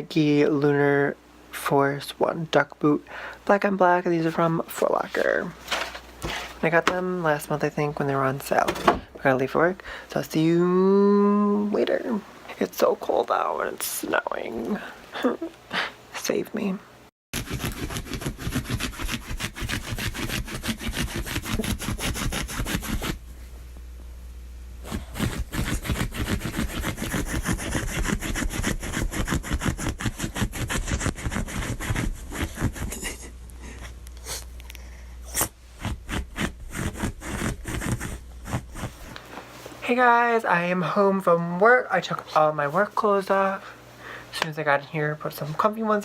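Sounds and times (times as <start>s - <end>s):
rapid rasping scraping: 17.4s - 23.2s, 24.8s - 33.3s, 35.3s - 39.2s.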